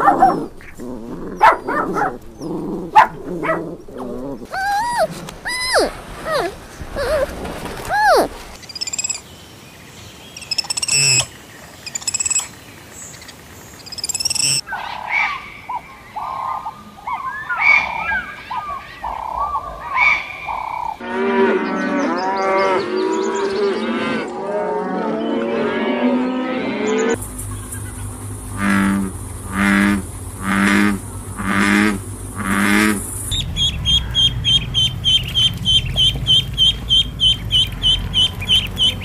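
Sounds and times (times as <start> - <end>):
short animal calls: 4.4 - 8.4
chorus of overlapping animal calls: 14.4 - 39.0
high chirps: 32.0 - 39.0.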